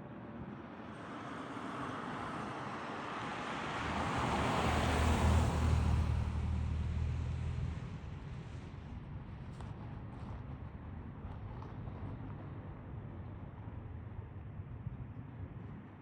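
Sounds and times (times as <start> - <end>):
vehicle passing by: 3.1 - 8.2.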